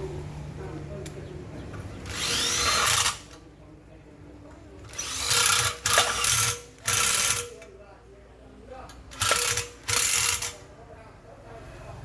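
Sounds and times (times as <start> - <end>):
handheld power tool running: 2.1 - 3.4, 4.9 - 7.5, 9.2 - 10.6.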